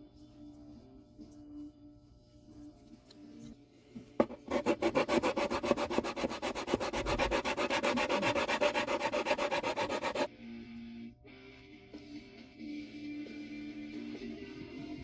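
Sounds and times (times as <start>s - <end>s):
hand sanding wood: 4.2s - 10.3s.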